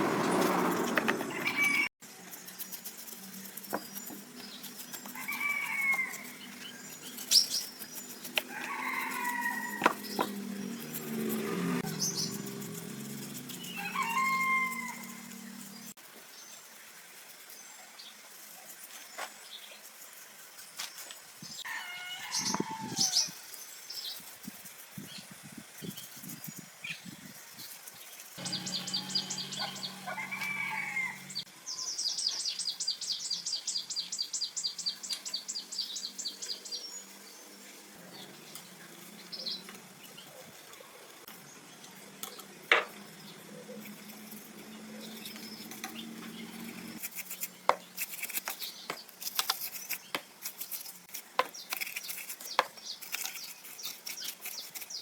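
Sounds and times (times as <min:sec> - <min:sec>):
chickens and birds calling: 0:00.0 - 0:01.9, 0:04.4 - 0:15.9, 0:21.6 - 0:23.4, 0:28.4 - 0:31.9.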